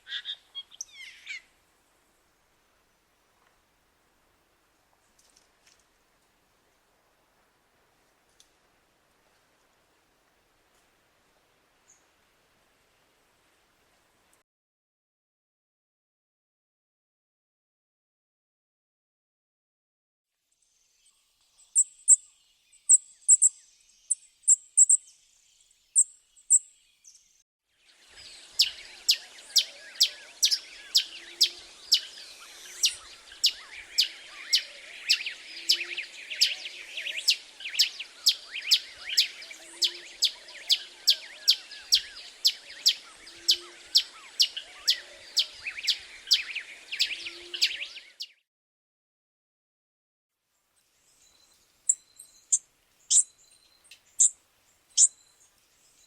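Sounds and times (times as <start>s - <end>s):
birds chirping: 21.0s - 27.4s, 28.0s - 48.4s, 51.1s - 56.0s
sharp high bird chirp: 22.9s - 23.6s, 24.5s - 25.0s, 51.9s - 54.3s, 55.0s - 55.4s.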